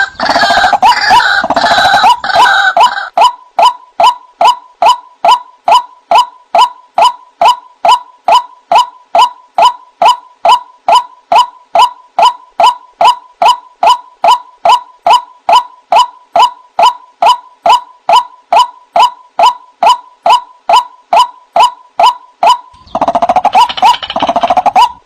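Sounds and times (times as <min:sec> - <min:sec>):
waterhen calling: 0:00.0 - 0:05.4, 0:22.0 - 0:25.0.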